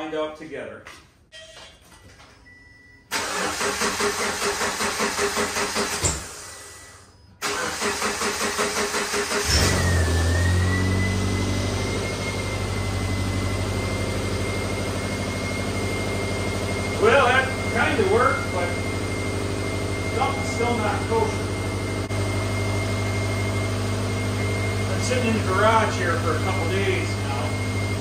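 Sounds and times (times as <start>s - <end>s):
car starter cranking: 3.1s - 6.7s, 7.4s - 10.4s.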